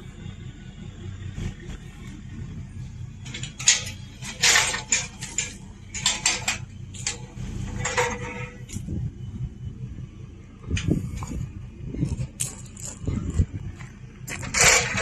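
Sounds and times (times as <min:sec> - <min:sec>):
low steady hum: 0:00.0 - 0:15.0
clattering and rattling knocks: 0:03.2 - 0:08.9, 0:12.0 - 0:15.0.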